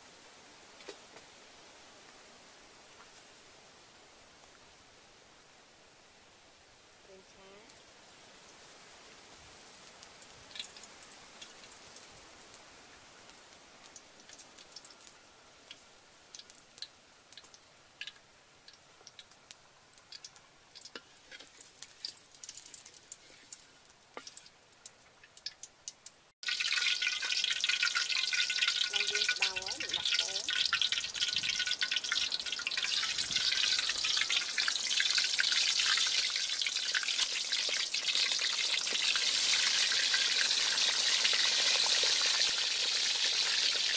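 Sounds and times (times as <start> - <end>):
oil crackling and popping: 0.8 - 1.3, 9.6 - 43.9
food sizzling in hot oil: 7.1 - 43.9.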